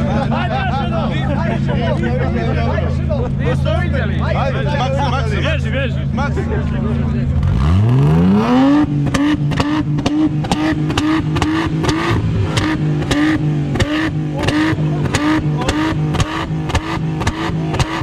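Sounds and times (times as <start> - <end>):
rev limiter crackles: 5.6 - 18.0
car engine revving hard: 6.7 - 18.0.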